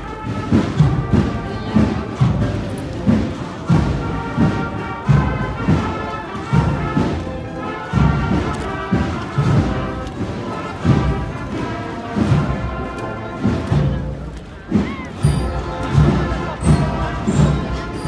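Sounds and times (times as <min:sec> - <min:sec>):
marching band playing: 0:00.0 - 0:18.0
bass drum beats: 0:13.7 - 0:18.0.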